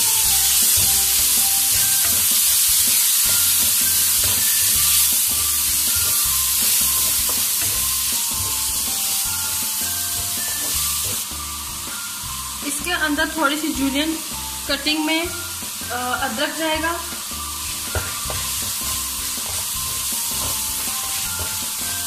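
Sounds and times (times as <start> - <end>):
tomatoes and onions sizzling: 0.0 - 22.0
wooden spatula stirring: 17.5 - 22.0.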